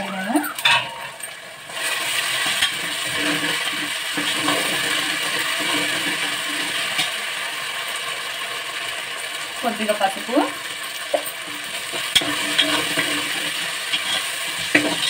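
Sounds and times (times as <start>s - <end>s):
steel ladle scraping pot: 0.0s - 1.3s, 11.9s - 15.0s
onions sizzling in hot oil: 0.0s - 15.0s.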